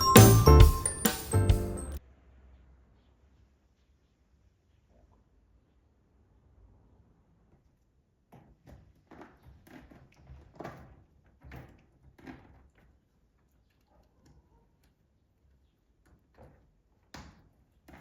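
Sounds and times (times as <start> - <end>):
faint knocks and clatters: 7.5 - 15.0.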